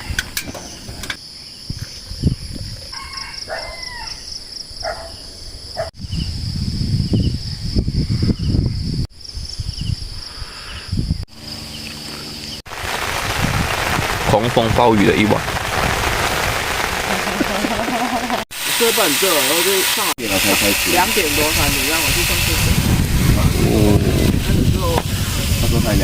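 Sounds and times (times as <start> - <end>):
crickets chirping: 0.0 - 13.8, 18.8 - 26.0
low rumbling noise: 20.2 - 26.0.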